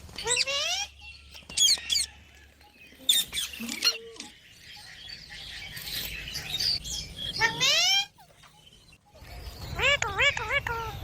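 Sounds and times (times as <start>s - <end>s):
parrot chirping: 3.0s - 11.0s.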